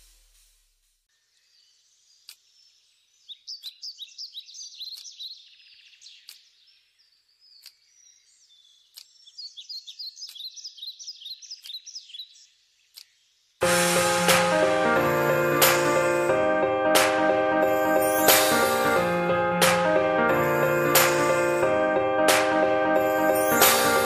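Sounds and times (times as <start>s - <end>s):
birds chirping: 1.2s - 13.6s.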